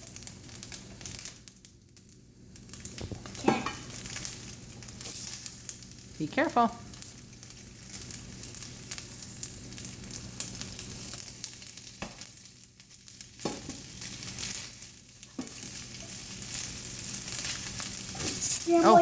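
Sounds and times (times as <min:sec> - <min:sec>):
food sizzling in a pot: 0:00.0 - 0:19.0.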